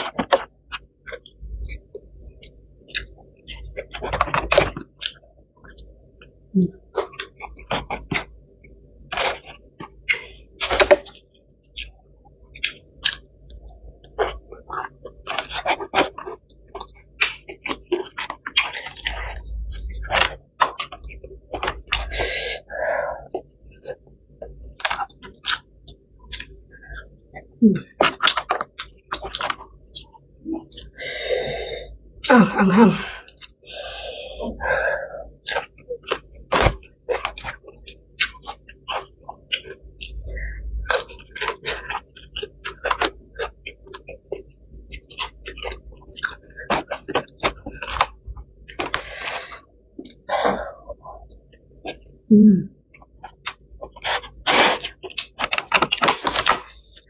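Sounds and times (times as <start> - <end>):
chewing and lip smacks: 35.4 - 49.1.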